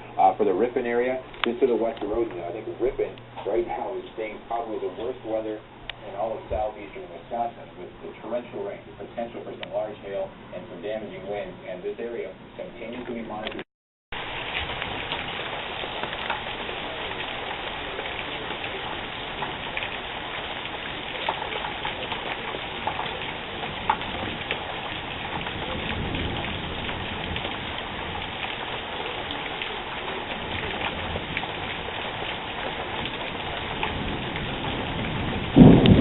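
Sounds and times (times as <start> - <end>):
steady rain: 0.0 - 36.0
raindrop ticks on a surface: 17.2 - 36.0.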